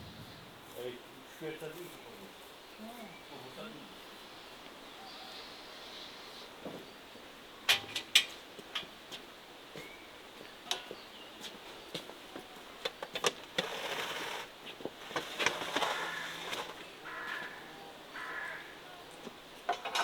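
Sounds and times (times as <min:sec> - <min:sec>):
rustling and scraping: 0:12.9 - 0:17.6.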